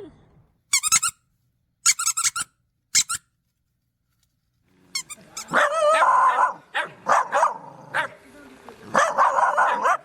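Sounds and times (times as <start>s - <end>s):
dog barking: 5.4s - 8.2s, 8.9s - 10.0s.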